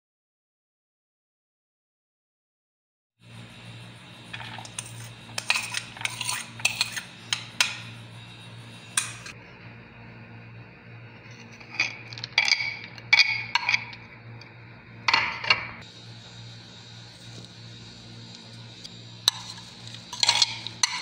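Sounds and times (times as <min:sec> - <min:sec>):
steady low hum: 0:03.2 - 0:21.0
utensils clinking against dishes: 0:04.3 - 0:08.0, 0:08.7 - 0:09.4, 0:11.5 - 0:14.1, 0:19.2 - 0:21.0.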